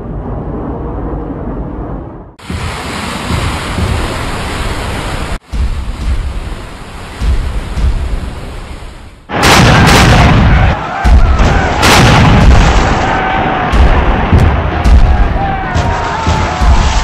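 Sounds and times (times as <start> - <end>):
wind: 0.0 - 17.0
sea waves: 2.4 - 17.0
cannon shots and explosions: 9.3 - 17.0.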